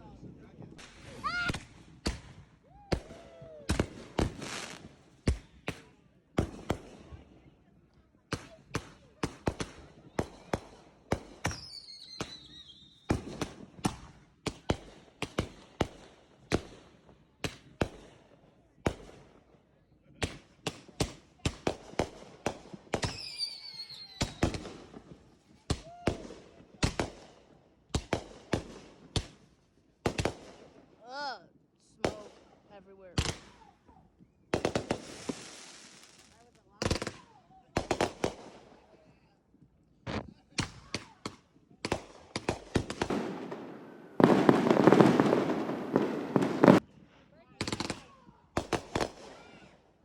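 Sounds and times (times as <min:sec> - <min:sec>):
firework bangs with crackle: 0:00.6 - 0:07.2, 0:08.3 - 0:18.2, 0:20.2 - 0:30.8, 0:32.0 - 0:33.7, 0:34.5 - 0:38.9, 0:40.1 - 0:46.9, 0:47.6 - 0:49.8
falling firework whistle: 0:11.5 - 0:13.1, 0:23.1 - 0:24.6
fireworks banging: 0:34.5 - 0:38.6, 0:40.1 - 0:46.8.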